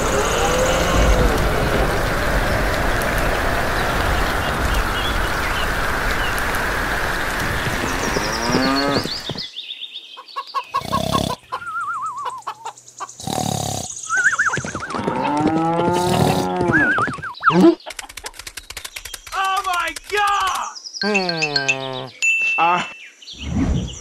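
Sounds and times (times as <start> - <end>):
rain hissing: 0.0 - 9.5, 15.8 - 16.7.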